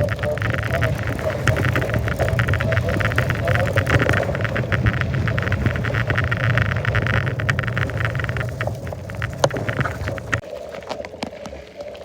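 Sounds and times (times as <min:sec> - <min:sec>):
bike riding rumble: 0:00.0 - 0:10.5.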